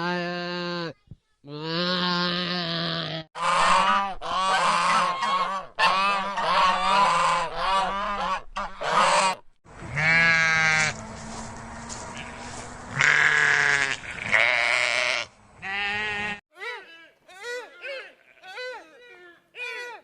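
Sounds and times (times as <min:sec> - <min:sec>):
waterfowl calling loudly: 0:03.4 - 0:15.9.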